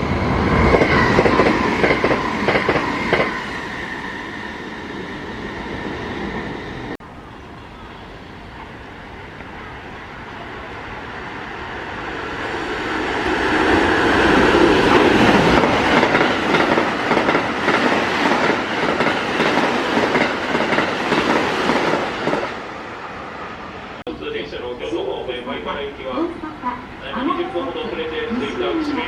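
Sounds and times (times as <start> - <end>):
electric train arriving: 0.0 - 29.0.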